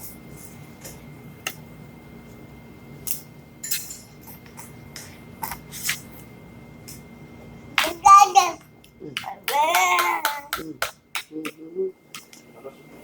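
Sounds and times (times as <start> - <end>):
toddler eating clicks and smacks: 7.8 - 12.5.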